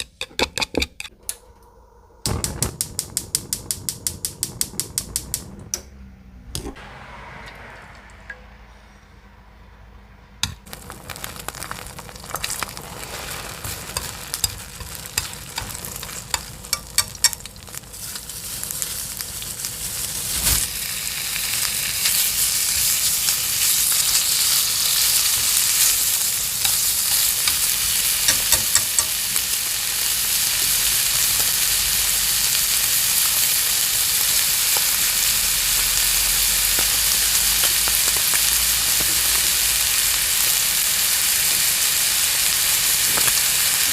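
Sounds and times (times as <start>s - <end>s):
lettuce sizzling in a pan: 10.7s - 43.9s.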